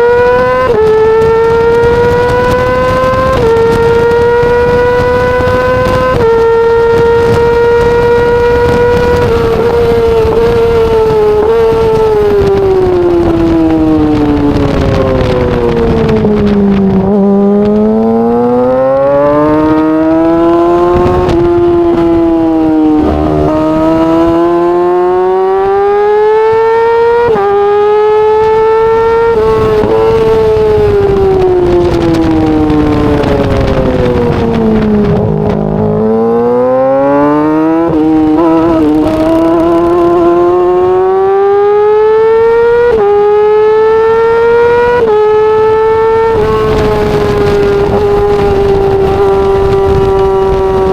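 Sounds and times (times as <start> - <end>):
motorcycle engine revving high: 0.0 - 50.9.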